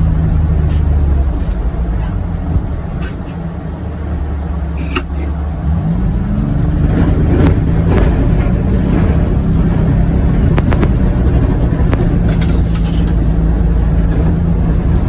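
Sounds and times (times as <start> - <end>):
utility vehicle engine running: 0.0 - 15.0.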